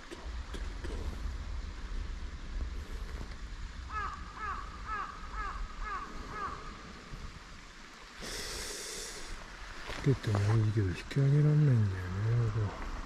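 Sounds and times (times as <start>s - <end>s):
bird calling: 3.9s - 6.8s.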